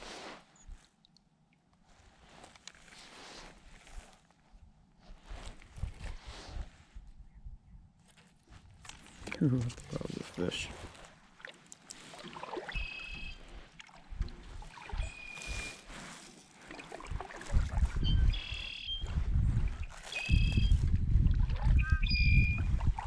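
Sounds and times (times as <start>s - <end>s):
bird calling: 12.4s - 13.5s, 14.8s - 15.8s, 18.0s - 19.1s, 19.9s - 20.8s.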